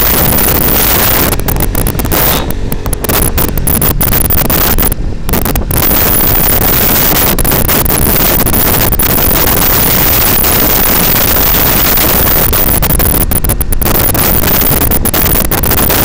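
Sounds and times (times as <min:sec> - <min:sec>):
motorcycle noise: 0:00.0 - 0:16.0
wind rushing over microphone: 0:00.0 - 0:16.0.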